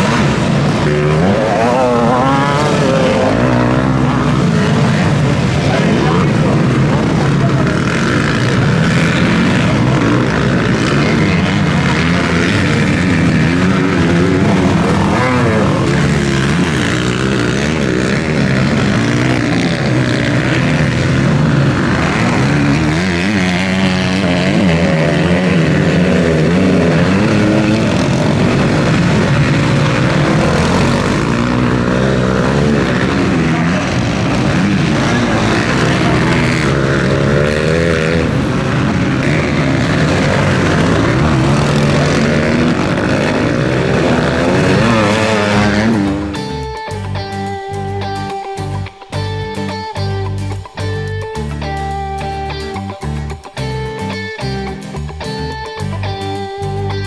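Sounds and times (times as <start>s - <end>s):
motocross bikes racing: 0.0s - 57.0s.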